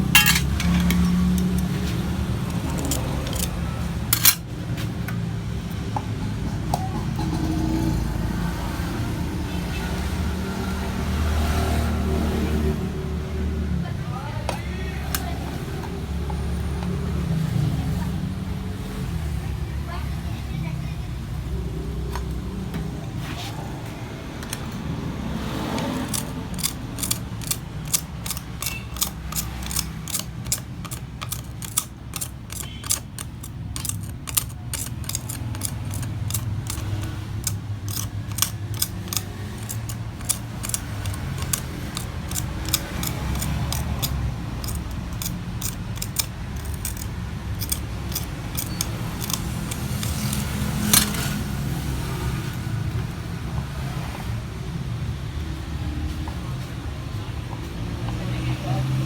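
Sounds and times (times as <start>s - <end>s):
sharp mechanical clicks: 0.0s - 1.8s, 2.4s - 4.5s, 24.4s - 24.8s, 25.6s - 52.6s.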